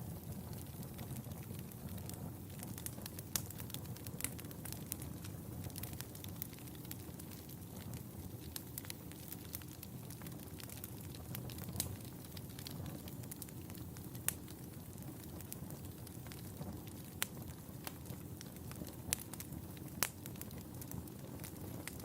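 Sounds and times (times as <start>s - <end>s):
fire crackling and popping: 0.0s - 22.0s
wood fire rumbling: 0.0s - 22.0s.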